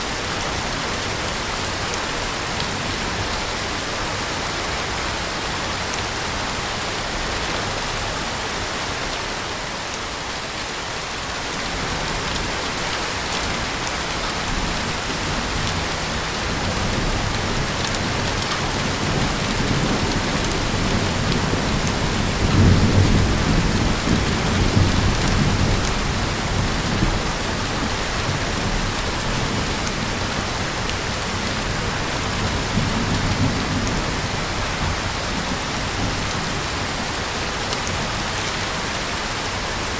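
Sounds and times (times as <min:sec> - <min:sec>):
heavy rain falling: 0:00.0 - 0:39.9
thunder rumbling: 0:13.5 - 0:37.2.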